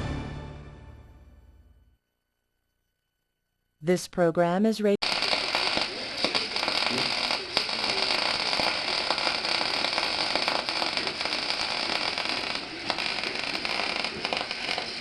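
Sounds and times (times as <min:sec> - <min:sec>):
welding arc crackling and sputtering: 0:05.0 - 0:15.0.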